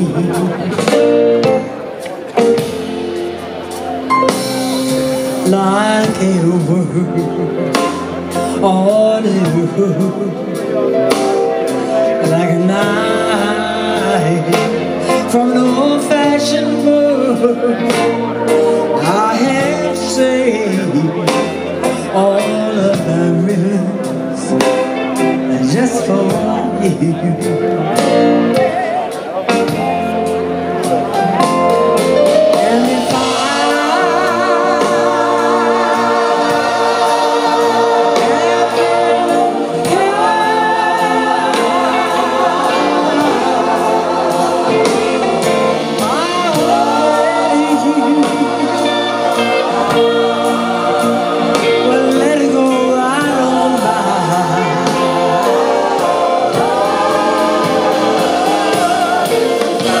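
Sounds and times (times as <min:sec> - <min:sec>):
live band music: 0:00.0 - 1:00.0
backing singers wordless harmonies: 0:32.0 - 1:00.0.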